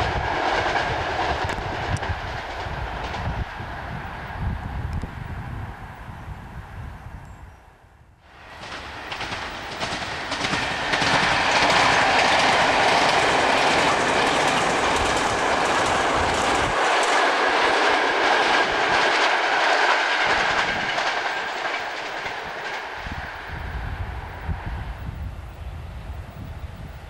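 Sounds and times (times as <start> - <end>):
passenger train passing: 0.0 - 7.2, 8.2 - 27.0.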